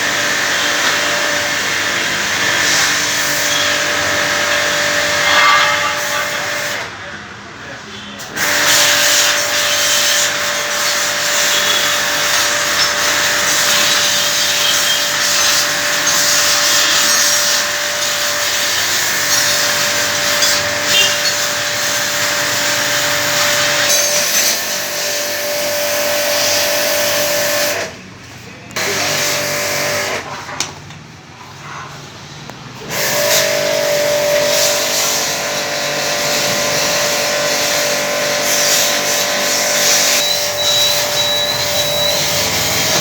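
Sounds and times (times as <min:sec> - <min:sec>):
power tool whining and grinding: 0:08.4 - 0:27.8, 0:32.8 - 0:43.0.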